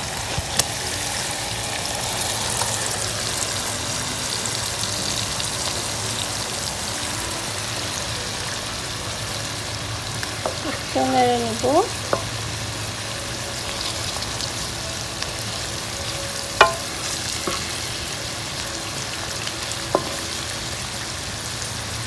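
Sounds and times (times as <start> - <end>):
fish sizzling in oil: 0.0 - 22.0
wooden spatula knocking pan: 16.6 - 17.7, 20.0 - 20.3.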